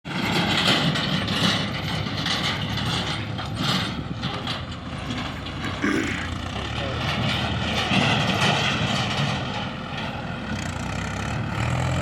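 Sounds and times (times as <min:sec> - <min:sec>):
metallic rattle and clatter: 0:00.1 - 0:05.8, 0:06.4 - 0:10.2
diesel machinery engine rumble: 0:00.6 - 0:12.0.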